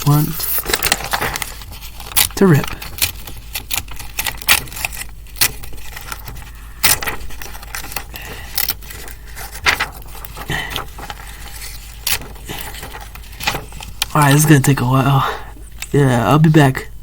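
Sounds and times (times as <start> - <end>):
paper tearing: 0.0 - 14.3.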